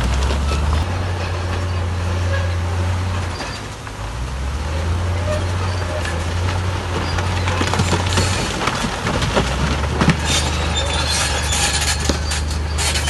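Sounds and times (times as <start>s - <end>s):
diesel engine running: 0.0s - 13.0s
rocks clattering and knocking: 5.5s - 13.0s.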